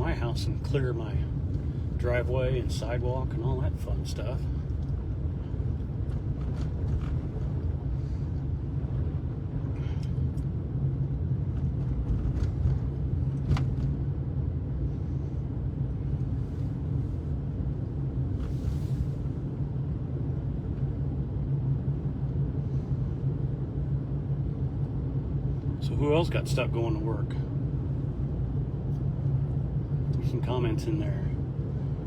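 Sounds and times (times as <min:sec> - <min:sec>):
car driving on snow: 0:00.0 - 0:23.1.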